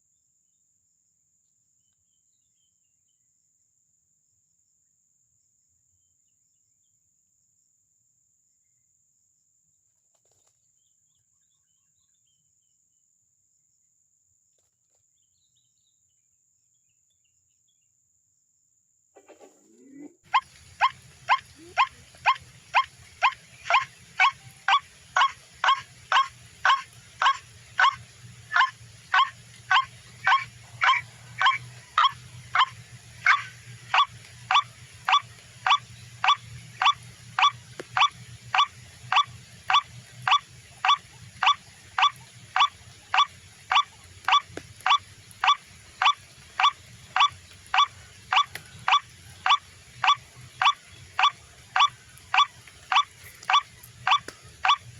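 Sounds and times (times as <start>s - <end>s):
bird call through speaker: 19.3s - 54.9s.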